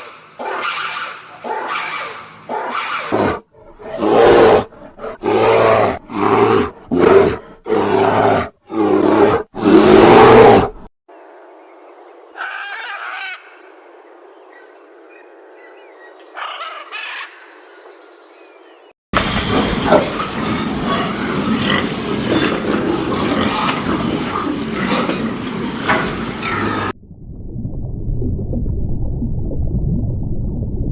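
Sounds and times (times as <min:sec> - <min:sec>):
animal calling loudly: 0:00.0 - 0:03.4, 0:12.4 - 0:13.6, 0:19.2 - 0:26.9.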